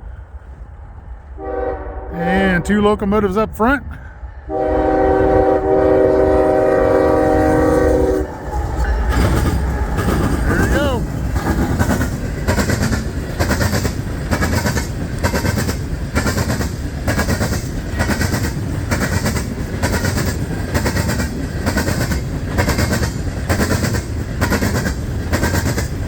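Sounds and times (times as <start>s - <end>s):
train cars rumbling past: 0.0s - 26.0s
train wheels clacking: 7.0s - 26.0s.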